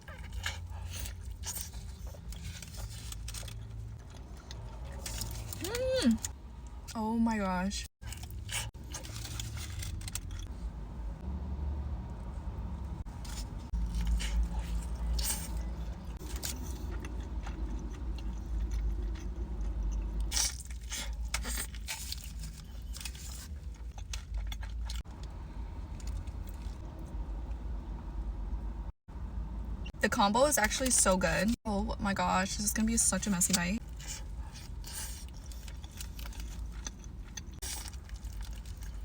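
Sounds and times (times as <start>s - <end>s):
chewing and biting food: 0.0s - 6.4s, 8.0s - 10.5s, 13.0s - 27.1s, 33.8s - 39.0s
food crunching: 0.0s - 6.4s, 8.0s - 10.5s, 13.1s - 26.8s, 33.8s - 39.0s.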